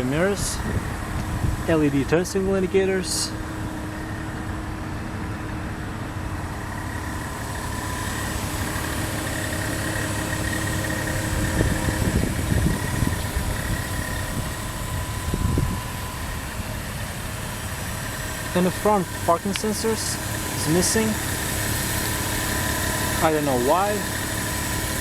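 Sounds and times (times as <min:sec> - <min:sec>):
low rumble: 0:00.0 - 0:19.6
car engine idling: 0:00.0 - 0:25.0.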